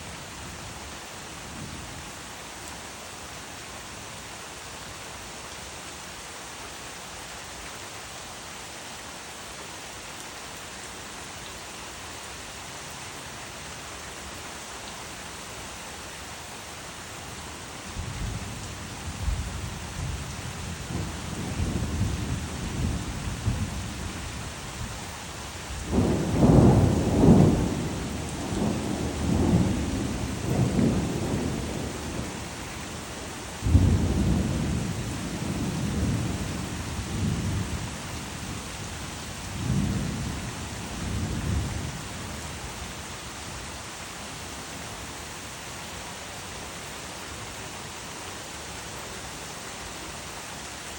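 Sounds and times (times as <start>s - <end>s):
steady rain: 0.0s - 50.9s
rolling thunder: 25.8s - 32.3s, 33.6s - 37.8s.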